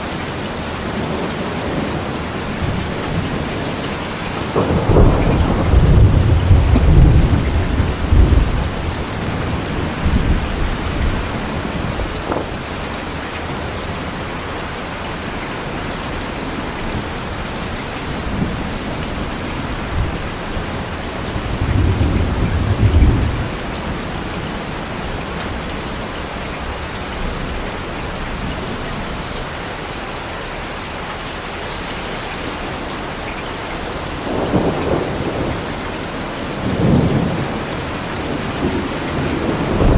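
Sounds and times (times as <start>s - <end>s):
steady rain falling: 0.0s - 39.9s
thunder rumbling: 1.0s - 13.7s, 16.6s - 25.6s, 34.2s - 39.9s.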